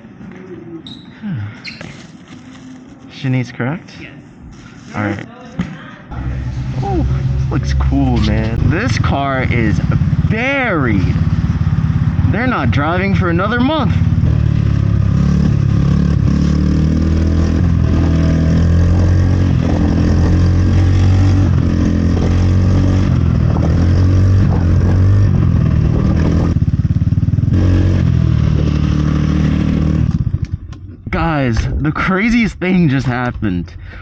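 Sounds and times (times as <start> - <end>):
motorbike motor and tyre noise: 6.1 - 31.0
wind buffeting microphone: 19.0 - 29.0.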